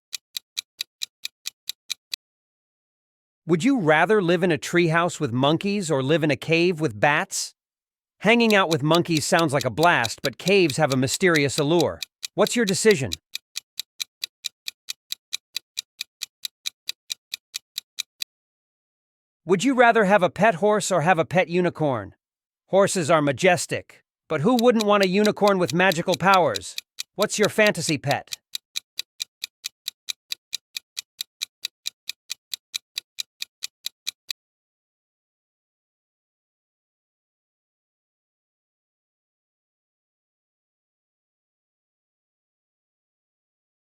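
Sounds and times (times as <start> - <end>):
clock ticking countdown: 0.0 - 2.2, 8.2 - 18.3, 24.3 - 34.4.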